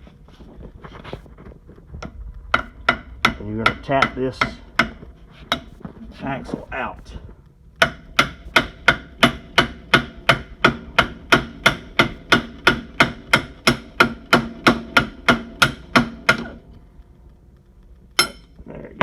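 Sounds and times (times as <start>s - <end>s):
hammer tapping on metal axle: 2.0s - 5.8s, 7.8s - 16.7s, 18.1s - 18.6s.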